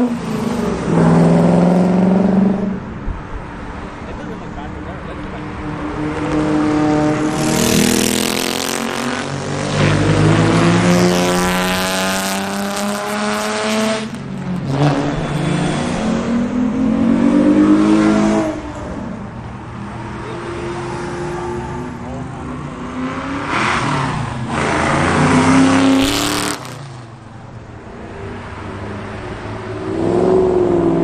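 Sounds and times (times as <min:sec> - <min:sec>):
car engine accelerating hard: 0:04.2 - 0:27.1.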